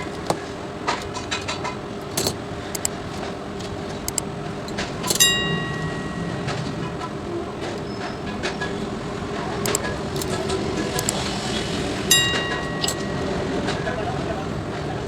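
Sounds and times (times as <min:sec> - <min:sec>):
small tools clicking and clinking: 0:00.0 - 0:07.0, 0:09.6 - 0:11.3, 0:12.0 - 0:13.8
steady low hum: 0:00.0 - 0:15.0
ringing metallic clink: 0:04.1 - 0:07.0, 0:12.0 - 0:13.9.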